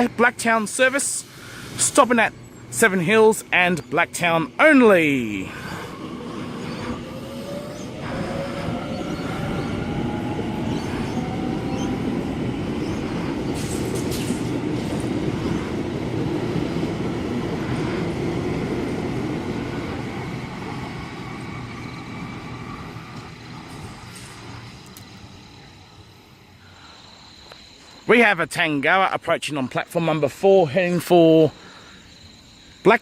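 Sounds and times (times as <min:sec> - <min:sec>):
train wheels rumbling on rail: 0:00.0 - 0:26.5
electric train motor whine: 0:04.7 - 0:26.4
train clatter: 0:06.4 - 0:25.3.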